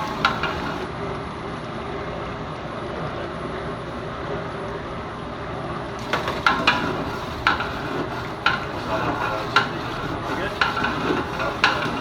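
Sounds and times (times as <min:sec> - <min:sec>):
metal spoon scraping cooking pot: 0:06.0 - 0:12.0.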